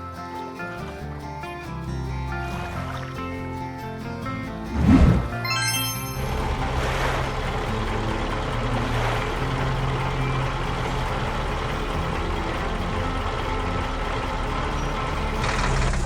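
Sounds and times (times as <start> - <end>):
heavy vehicle engine running: 6.2 - 16.0.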